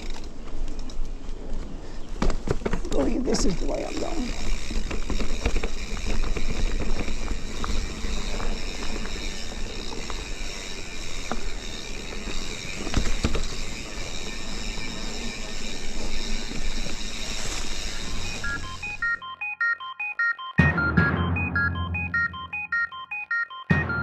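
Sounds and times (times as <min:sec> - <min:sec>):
bike tyres on dirt trail: 0:00.0 - 0:19.2
bike knocks and rattles: 0:02.2 - 0:18.7.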